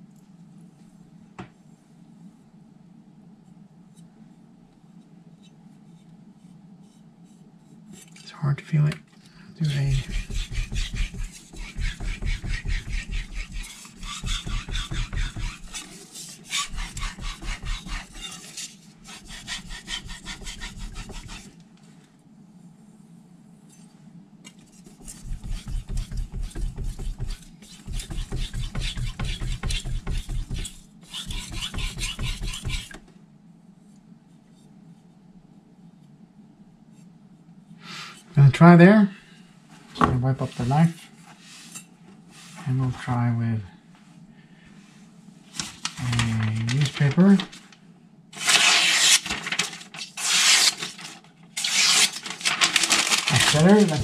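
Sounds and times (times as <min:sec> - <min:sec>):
knife scraping on whetstone: 0:09.7 - 0:21.5, 0:24.8 - 0:33.0.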